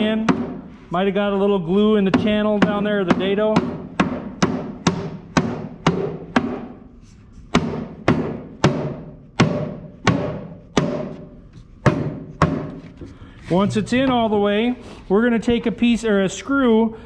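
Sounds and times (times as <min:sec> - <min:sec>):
mallet knocking wooden panel: 0:00.0 - 0:00.6, 0:02.1 - 0:06.8, 0:07.5 - 0:13.0.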